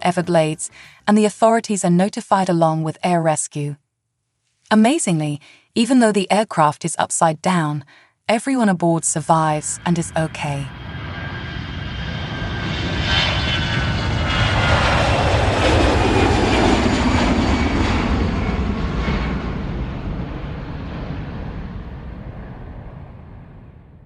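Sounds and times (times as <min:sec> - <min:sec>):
airplane flying past: 0:09.5 - 0:24.0.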